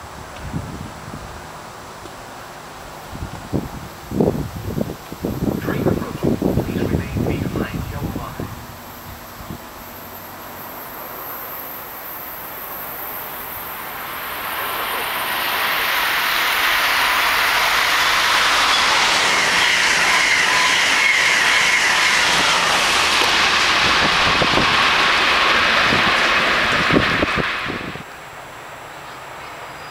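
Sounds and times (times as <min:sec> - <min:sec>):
train wheels rushing on rail: 0:00.0 - 0:29.9
faint wheel squeal: 0:14.5 - 0:24.0, 0:29.1 - 0:29.9.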